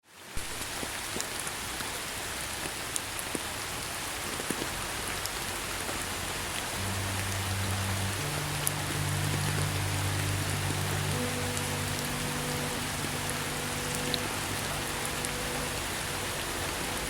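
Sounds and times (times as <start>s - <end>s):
steady rain falling: 0.0s - 17.0s
calm background music: 5.6s - 17.0s.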